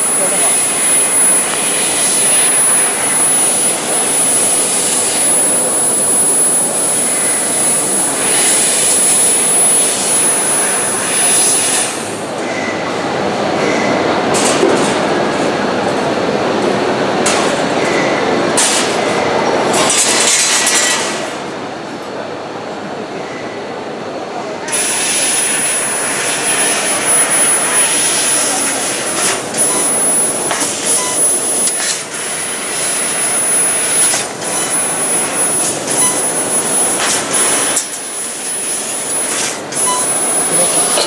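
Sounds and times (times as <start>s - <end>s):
laser cutter hissing: 0.0s - 12.3s, 24.7s - 41.0s
thin high whine: 0.0s - 12.4s, 24.7s - 41.0s.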